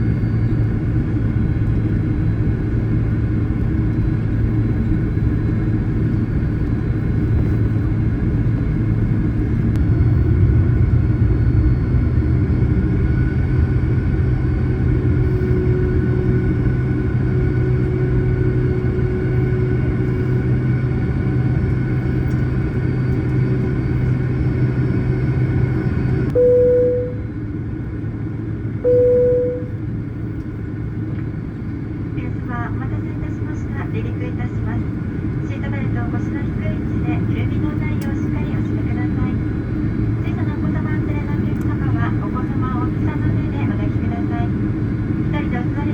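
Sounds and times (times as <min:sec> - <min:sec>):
jet engines rumbling in cabin: 0:00.0 - 0:45.9
short steady tone: 0:26.3 - 0:27.4, 0:28.8 - 0:29.9.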